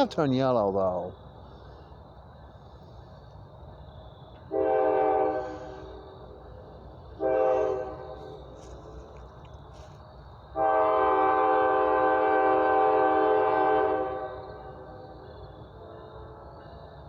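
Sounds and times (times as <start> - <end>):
locomotive air horn blasts: 4.5 - 6.0, 7.2 - 8.6, 10.6 - 14.9.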